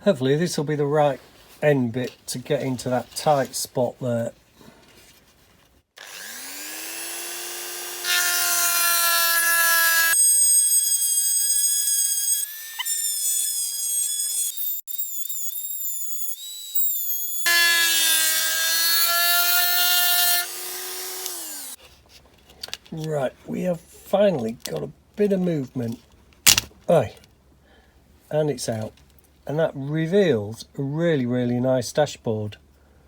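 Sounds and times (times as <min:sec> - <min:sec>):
rotary tool grinding metal: 0:06.0 - 0:21.8.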